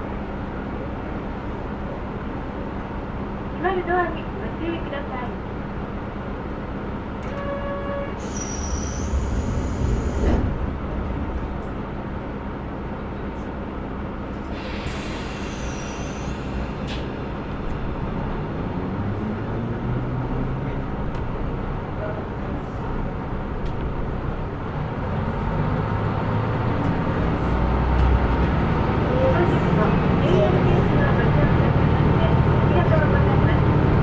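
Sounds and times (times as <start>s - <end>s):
diesel engine idling: 9.1s - 34.0s
pneumatic air hissing: 14.5s - 17.1s.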